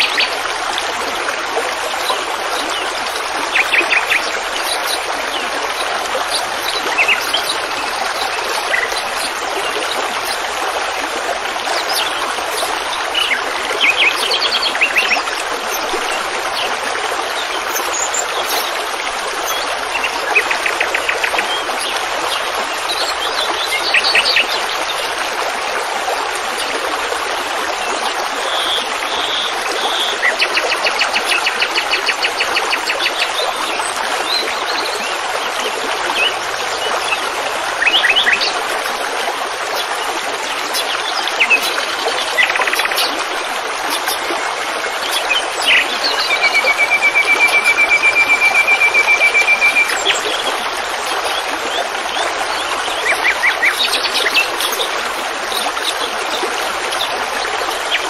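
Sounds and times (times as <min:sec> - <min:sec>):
songbirds chirping in trills: 0:01.9 - 0:10.6, 0:11.7 - 0:25.2, 0:39.7 - 0:58.0.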